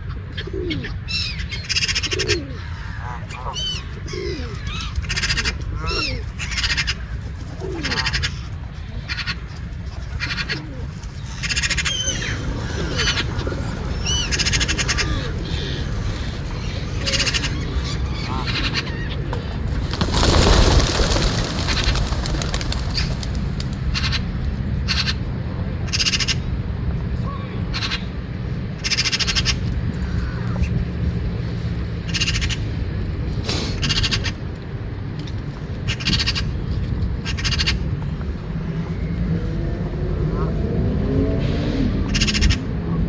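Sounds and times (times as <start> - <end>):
birds calling: 0.0 - 26.6
loud rushing noise: 19.8 - 24.3.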